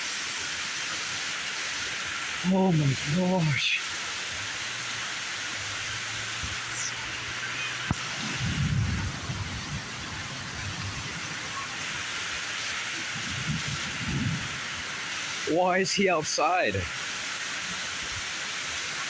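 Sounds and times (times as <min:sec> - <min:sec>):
heavy rain downpour: 0:00.0 - 0:19.0
low thunder rumble: 0:07.9 - 0:12.1, 0:13.0 - 0:14.8.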